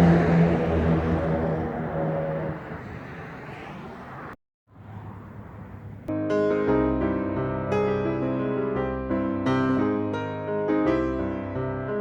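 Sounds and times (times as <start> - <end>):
truck engine and road noise: 0.0 - 6.1.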